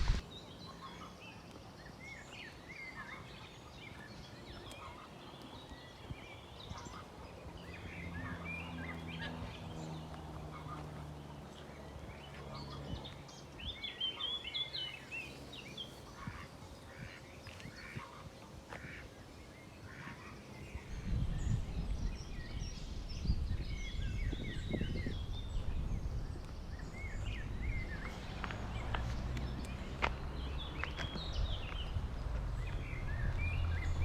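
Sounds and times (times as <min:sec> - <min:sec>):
low rumble: 0:00.0 - 0:00.2, 0:20.8 - 0:34.0
birds chirping and singing: 0:00.0 - 0:34.0.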